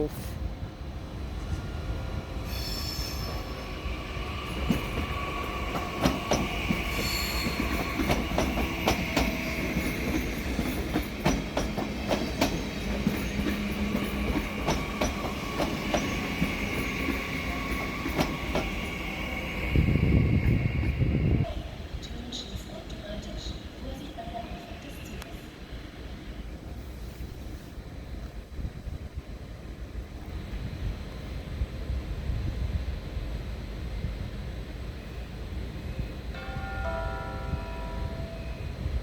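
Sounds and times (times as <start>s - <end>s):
train wheels squealing on track: 2.4s - 21.6s
clacks over rail joints: 5.7s - 18.8s.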